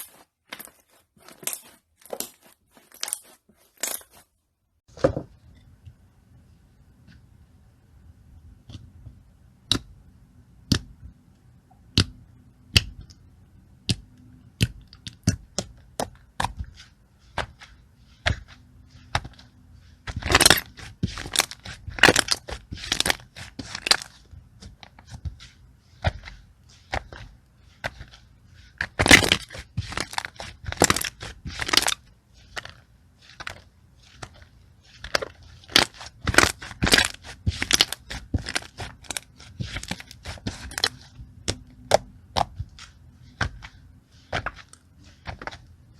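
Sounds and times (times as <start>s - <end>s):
slime clicking and crackling: 20.1s - 24.2s, 28.8s - 43.6s.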